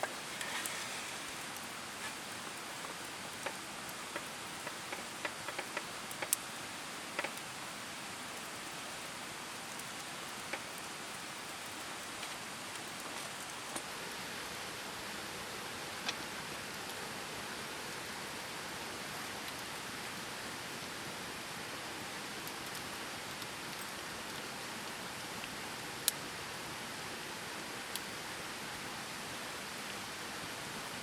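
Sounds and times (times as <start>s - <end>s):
campfire crackling and popping: 0.0s - 13.9s, 22.3s - 26.2s.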